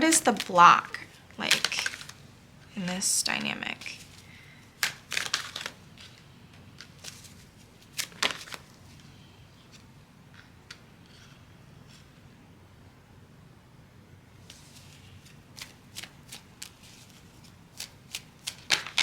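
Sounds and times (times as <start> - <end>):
cards snapping and riffling: 1.5 - 2.2, 4.8 - 6.2, 6.8 - 8.8, 14.5 - 19.0.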